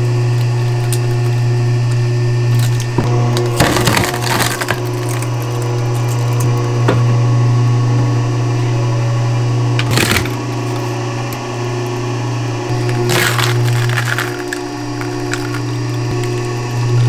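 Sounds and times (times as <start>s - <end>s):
steady low hum: 0.0s - 17.0s
firewood clattering: 12.7s - 16.8s.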